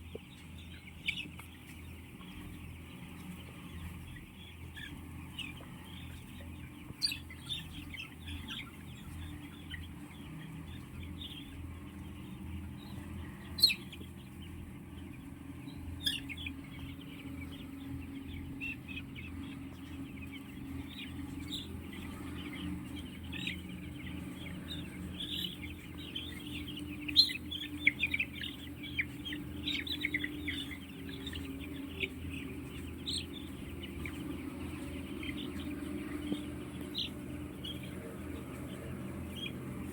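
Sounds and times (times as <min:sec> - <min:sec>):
chickens clucking: 0:00.0 - 0:39.9
steady low hum: 0:00.0 - 0:39.9.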